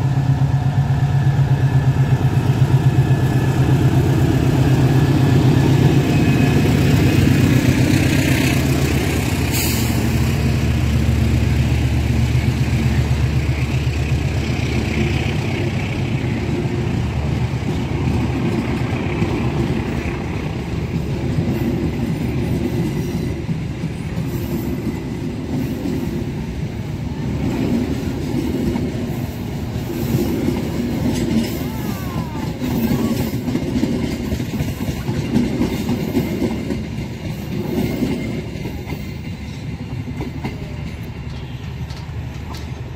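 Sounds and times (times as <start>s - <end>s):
train wheels clattering over rail joints: 27.4s - 31.8s, 32.5s - 42.9s.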